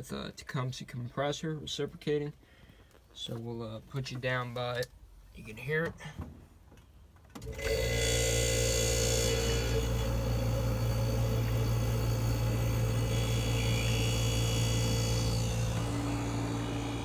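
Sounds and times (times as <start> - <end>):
compressor humming: 7.4 - 17.0
compressor whine: 7.4 - 17.0.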